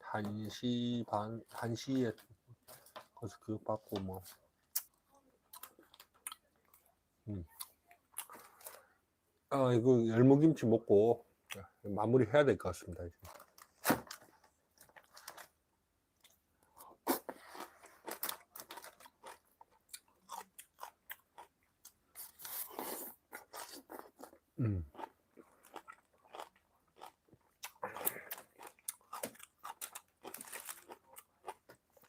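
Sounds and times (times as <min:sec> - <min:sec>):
crunchy chewing: 0:16.2 - 0:32.0.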